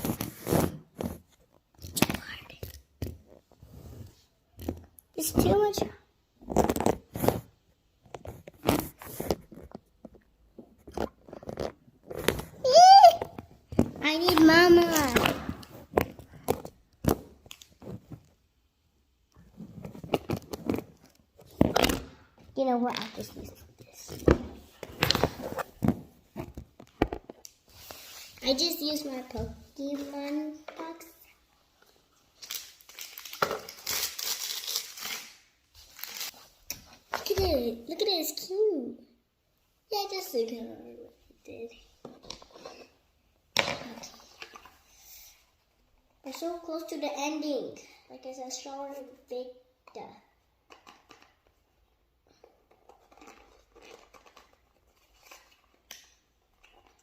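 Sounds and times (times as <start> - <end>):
packaging crinkling and tearing: 32.4 - 36.4.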